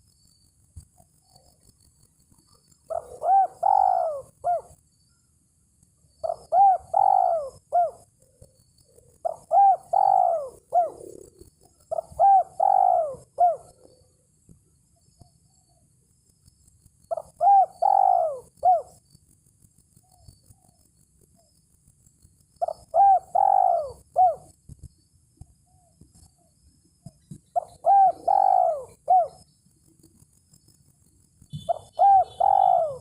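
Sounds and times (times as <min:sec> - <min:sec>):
dove cooing: 0:02.8 - 0:04.8, 0:06.2 - 0:14.0, 0:17.1 - 0:19.0, 0:22.6 - 0:24.5, 0:27.6 - 0:29.4, 0:31.5 - 0:33.0.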